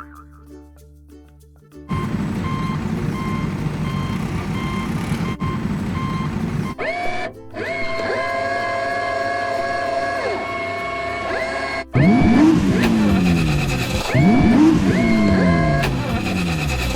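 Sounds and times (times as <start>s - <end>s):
reversing alarm beeping: 1.9s - 7.0s
heavy truck engine running: 1.9s - 8.6s, 9.2s - 16.9s
rising held tone: 1.9s - 16.9s.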